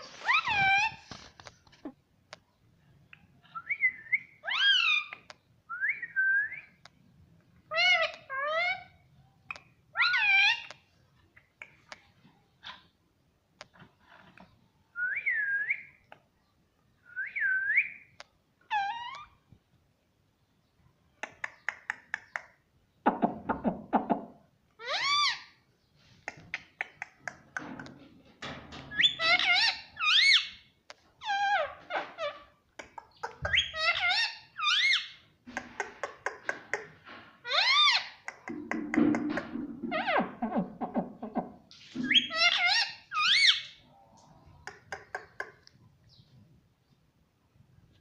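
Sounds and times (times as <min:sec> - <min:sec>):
parakeet shrill calls: 0:42.0 - 0:43.8.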